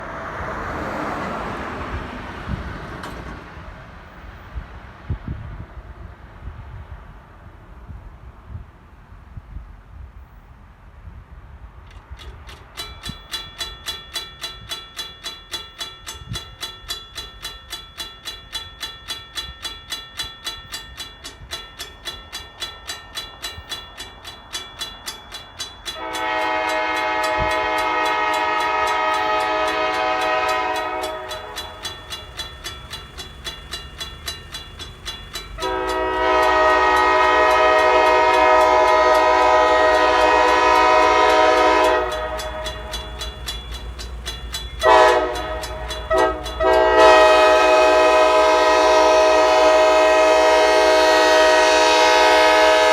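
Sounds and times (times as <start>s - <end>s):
locomotive low rumble: 11.4s - 52.9s
railroad crossing bell ringing: 11.9s - 52.9s
locomotive horn blasts: 25.9s - 52.9s.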